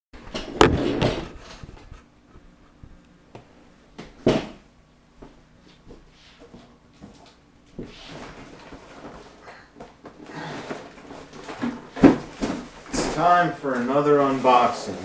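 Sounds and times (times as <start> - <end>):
handling knocks and thuds: 0.3 - 1.9, 10.0 - 13.4.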